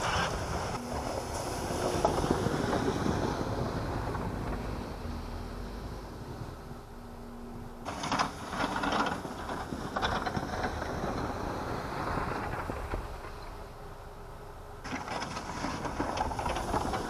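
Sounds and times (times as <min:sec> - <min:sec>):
plow scraping through snow: 0:00.0 - 0:14.2, 0:14.8 - 0:17.0
engine running under load: 0:00.0 - 0:17.0
low steady hum: 0:00.0 - 0:17.0.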